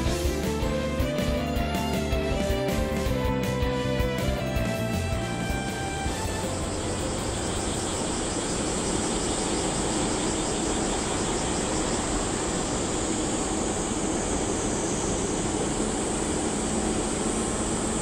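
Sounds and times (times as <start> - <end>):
electric train approaching: 0.0 - 18.0.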